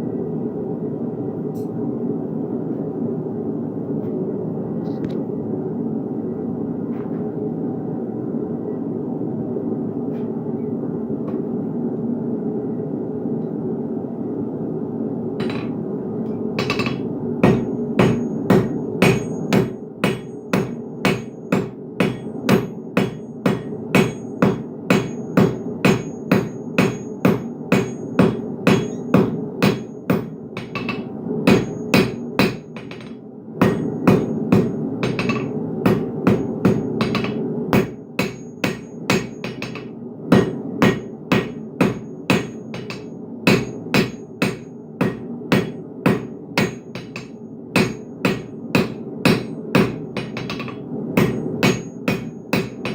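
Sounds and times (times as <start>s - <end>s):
hammer ringing on anvil: 15.4s - 15.8s, 16.6s - 52.9s.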